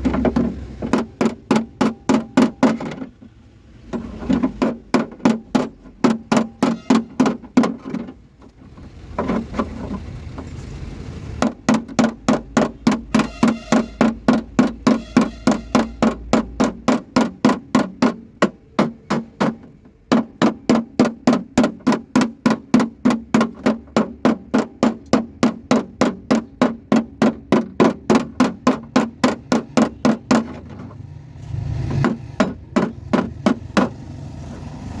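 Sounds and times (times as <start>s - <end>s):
hammer blows on metal: 11.4s - 19.6s.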